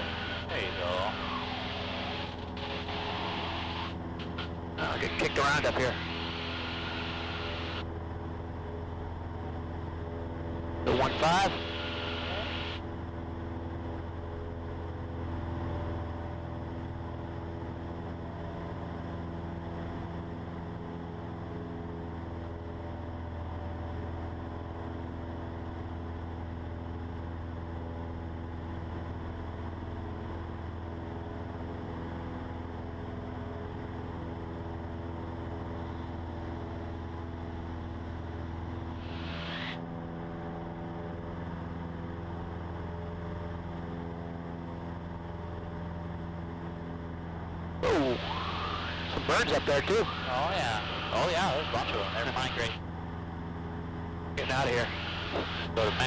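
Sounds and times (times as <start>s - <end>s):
aircraft engine and propeller droning: 0.0s - 56.0s.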